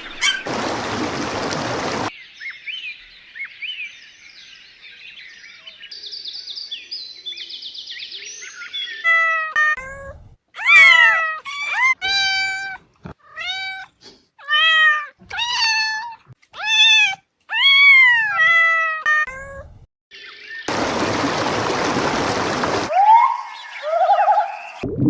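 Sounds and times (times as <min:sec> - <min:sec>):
cat meowing: 0:00.2 - 0:00.5, 0:10.6 - 0:19.7.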